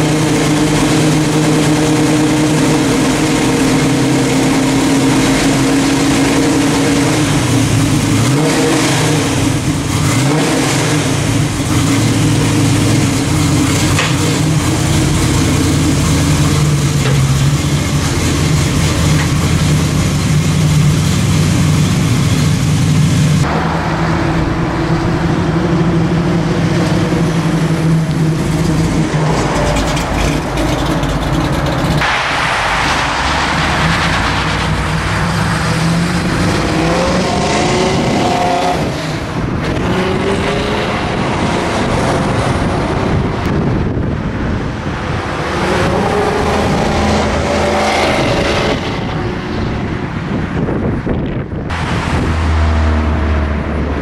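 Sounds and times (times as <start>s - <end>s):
car engine idling: 0.0s - 10.4s, 11.0s - 36.7s
car accelerating past: 23.4s - 43.0s.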